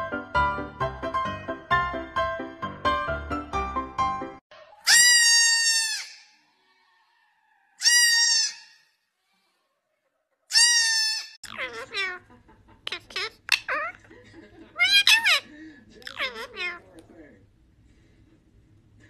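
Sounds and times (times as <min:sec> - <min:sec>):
goat bleating loudly: 0:04.9 - 0:06.2, 0:07.8 - 0:08.8, 0:10.5 - 0:12.2
parakeet calls: 0:10.6 - 0:12.2, 0:12.8 - 0:14.0, 0:14.8 - 0:16.9.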